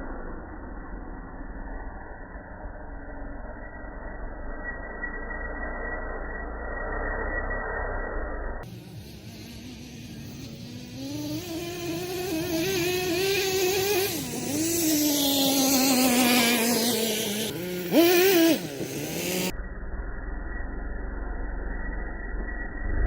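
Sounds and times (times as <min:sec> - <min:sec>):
small engine revving: 0:08.6 - 0:19.6.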